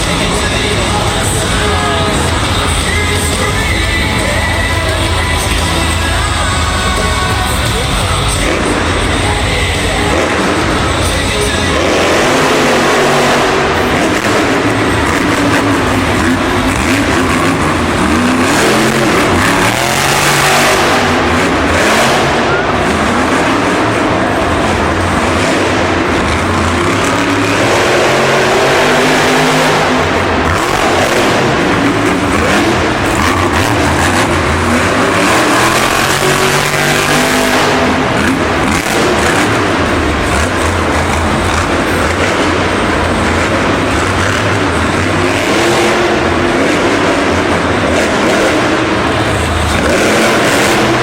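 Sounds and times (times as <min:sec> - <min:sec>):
truck engines revving hard: 0:00.0 - 0:51.0.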